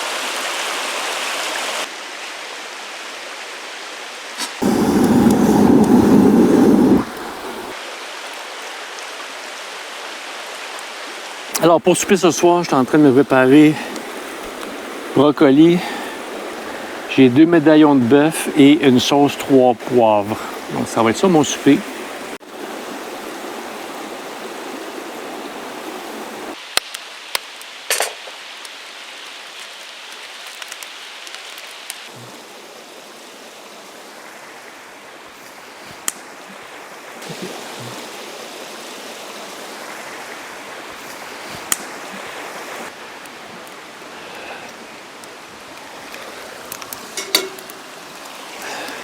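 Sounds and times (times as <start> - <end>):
food sizzling in a pan: 47.0 - 48.6.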